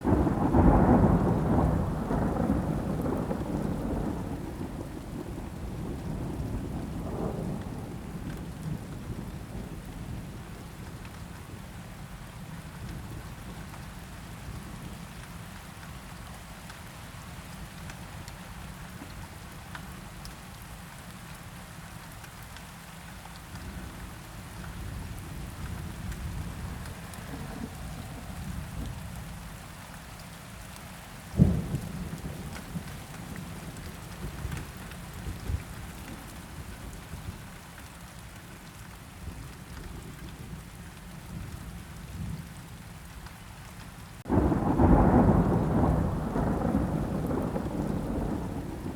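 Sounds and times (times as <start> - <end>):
steady rain: 0.0 - 48.9
thunder rolling: 25.9 - 29.1, 44.2 - 48.9.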